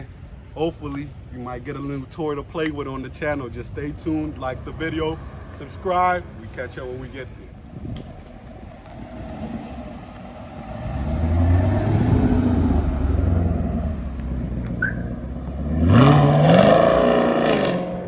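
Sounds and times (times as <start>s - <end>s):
car engine revving: 3.7s - 18.0s.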